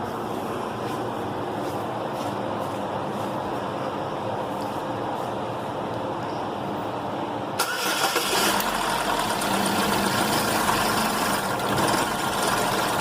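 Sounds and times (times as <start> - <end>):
car engine cranking and running: 7.6 - 13.0.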